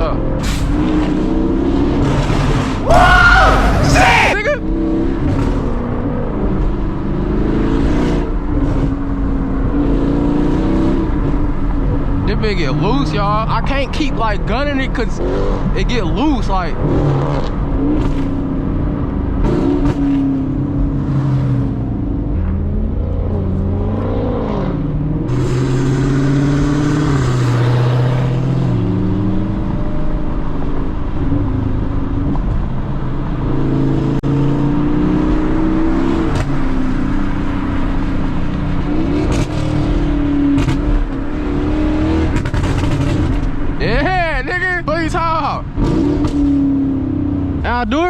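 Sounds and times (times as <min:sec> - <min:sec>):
car engine accelerating: 0:00.0 - 0:48.0
rushing hiss: 0:25.3 - 0:27.4.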